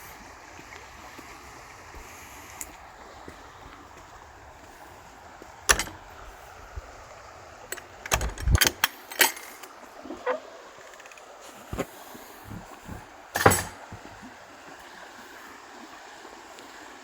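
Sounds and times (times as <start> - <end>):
river water rushing: 0.0 - 17.0
sharp knocks and clicks: 5.7 - 6.1, 7.7 - 11.2.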